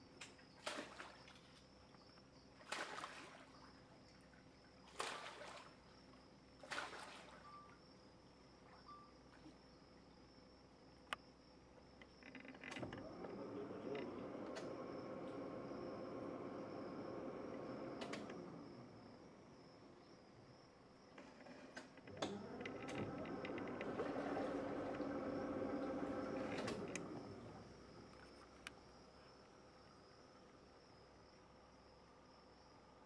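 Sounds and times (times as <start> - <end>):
insects droning: 0.0 - 33.0
crocodile splashing in water: 0.6 - 1.4, 2.6 - 3.8, 4.8 - 5.9, 6.6 - 7.4.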